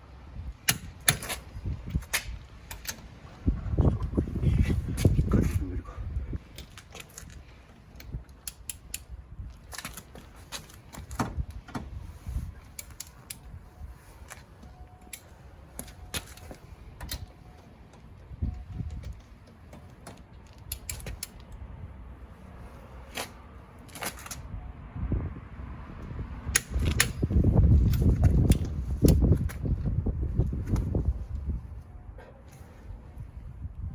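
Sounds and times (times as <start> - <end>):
wrench clicking on wheel nuts: 7.9 - 9.1, 18.8 - 21.6.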